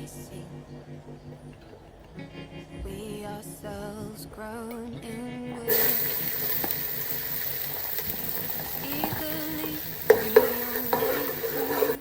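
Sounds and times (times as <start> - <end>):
food sizzling in a pan: 5.7 - 12.0.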